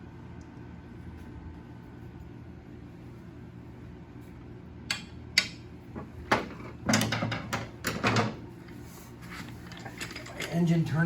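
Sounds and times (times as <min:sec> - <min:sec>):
metal tools clattering on workbench: 0:09.4 - 0:10.8.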